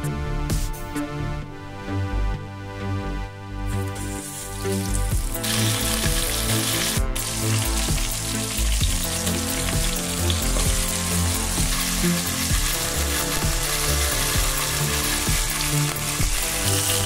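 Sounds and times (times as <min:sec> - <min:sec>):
chicken sizzling in fat: 0:03.7 - 0:17.0.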